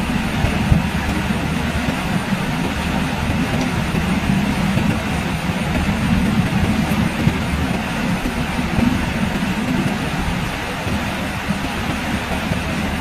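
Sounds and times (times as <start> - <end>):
deep constant rumble: 0.0 - 13.0
heavy rain hissing: 0.0 - 13.0.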